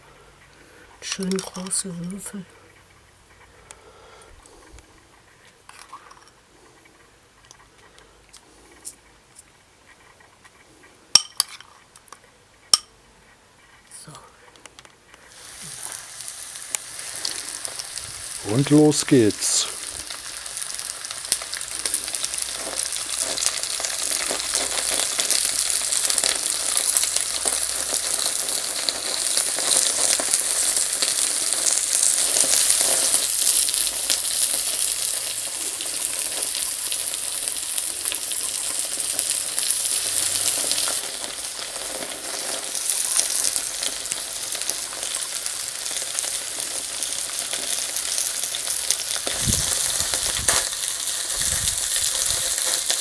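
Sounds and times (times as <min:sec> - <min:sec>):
meat sizzling on a grill: 0:15.2 - 0:53.0.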